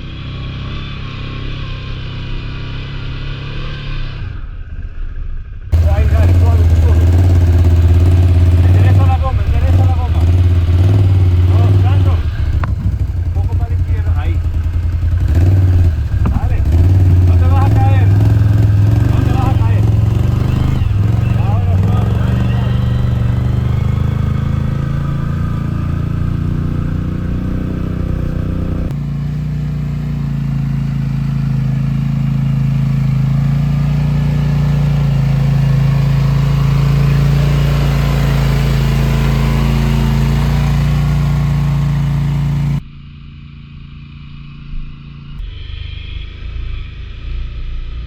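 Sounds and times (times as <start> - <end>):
atv engine running: 5.8 - 42.8.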